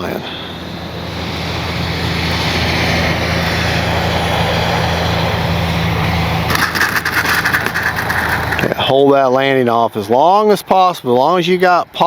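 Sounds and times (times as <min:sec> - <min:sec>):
model airplane motor buzzing: 0:00.5 - 0:08.8.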